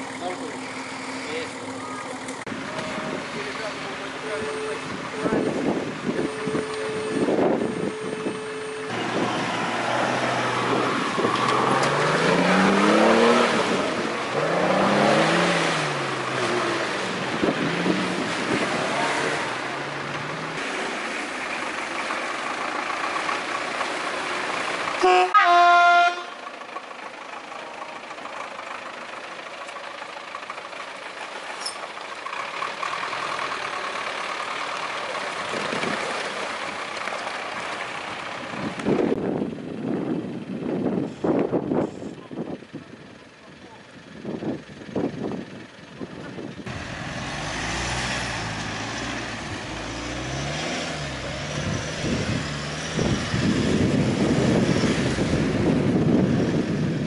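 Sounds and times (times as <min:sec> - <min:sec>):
vehicle engines revving: 0:00.0 - 0:57.0
vehicle horn: 0:06.2 - 0:09.2, 0:25.0 - 0:26.4.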